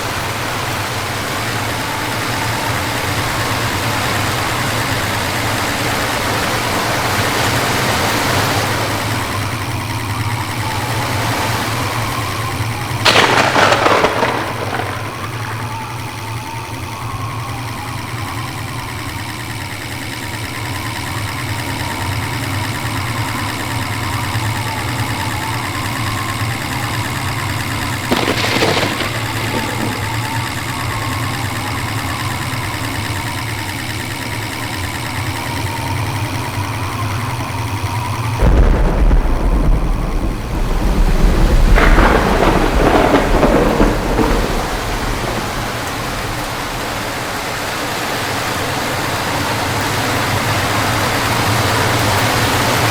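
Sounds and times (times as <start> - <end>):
thunder rumbling: 0.0 - 18.9, 23.3 - 33.4, 37.2 - 52.9
rain: 0.0 - 52.9
short sharp crack: 13.1 - 15.9, 28.1 - 30.3.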